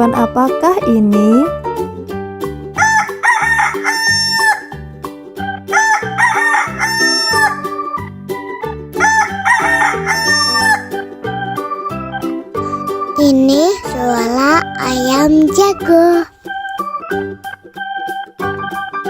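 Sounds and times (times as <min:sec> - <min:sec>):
backing tune: 0:12.6 - 0:16.4.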